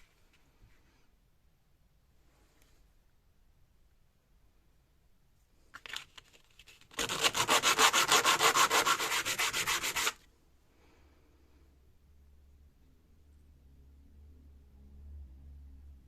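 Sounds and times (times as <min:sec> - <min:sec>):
hand sanding on metal: 0:07.0 - 0:10.2.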